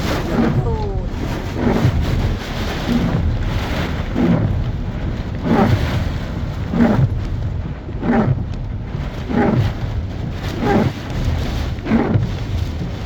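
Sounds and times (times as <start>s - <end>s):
rain: 0.0s - 13.0s
storm wind rumbling on microphone: 0.0s - 13.0s.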